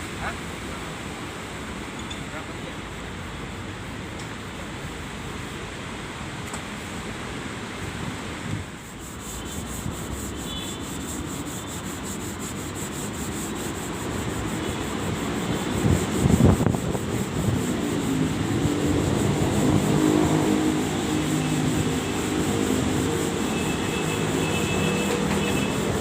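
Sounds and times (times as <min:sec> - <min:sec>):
sanding a car body panel: 0:08.6 - 0:26.0.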